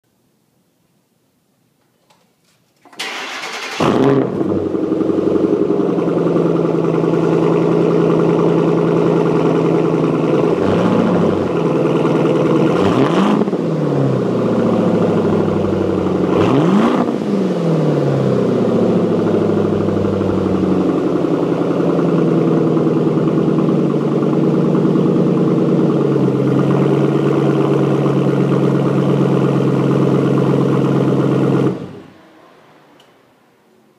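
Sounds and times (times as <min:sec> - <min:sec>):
car engine starting and idling: 0:02.8 - 0:33.9
engine revving: 0:03.0 - 0:06.1, 0:10.1 - 0:21.5.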